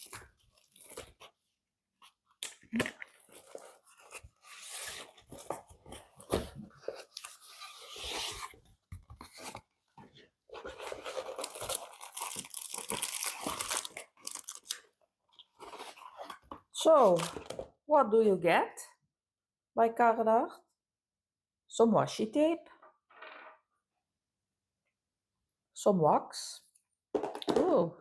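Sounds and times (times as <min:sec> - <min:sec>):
packaging crinkling and tearing: 0:00.0 - 0:01.2, 0:10.6 - 0:14.8.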